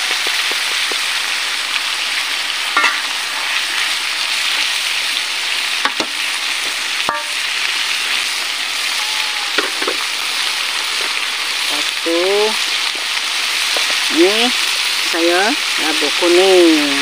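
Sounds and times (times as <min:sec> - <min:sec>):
vegetables sizzling in a wok: 0:00.0 - 0:17.0
metal spatula clinking on wok: 0:07.1 - 0:07.4.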